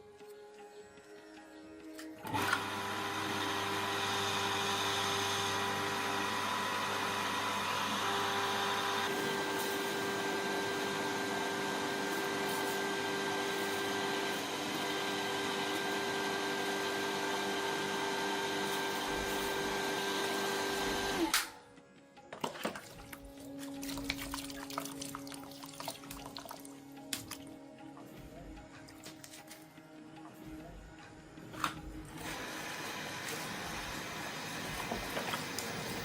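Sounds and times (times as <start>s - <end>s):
machine whining: 2.1s - 21.6s, 30.6s - 36.0s.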